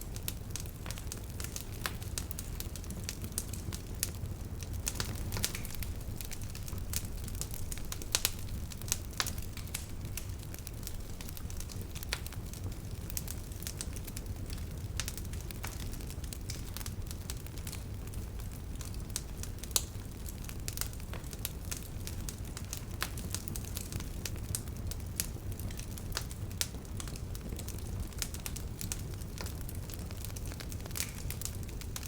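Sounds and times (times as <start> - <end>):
campfire crackling and popping: 0.0 - 32.0
steady low rumble: 4.8 - 12.2.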